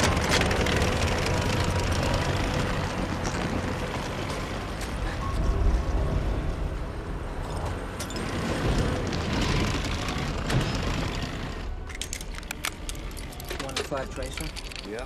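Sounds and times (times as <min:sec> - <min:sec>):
deep tank engine rumble: 0:00.0 - 0:11.9.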